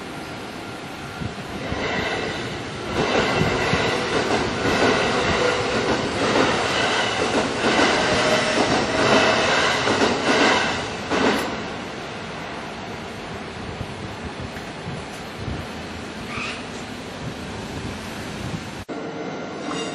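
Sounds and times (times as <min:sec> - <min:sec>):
train wheels clacking over rail joints: 0:01.6 - 0:11.6.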